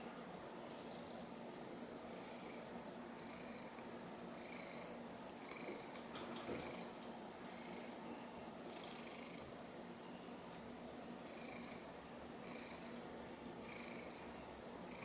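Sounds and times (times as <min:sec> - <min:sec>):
cat purring: 0:00.6 - 0:01.3, 0:02.1 - 0:07.9, 0:08.7 - 0:09.5, 0:11.2 - 0:13.0, 0:13.6 - 0:14.3.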